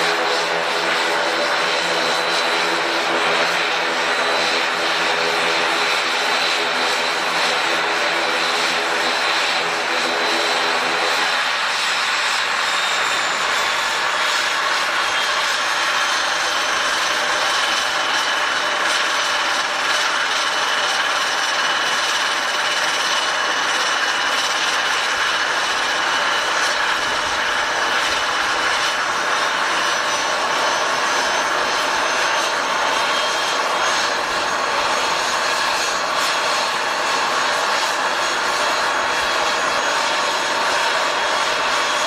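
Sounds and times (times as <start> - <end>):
airliner engines running: 0.0 - 42.0.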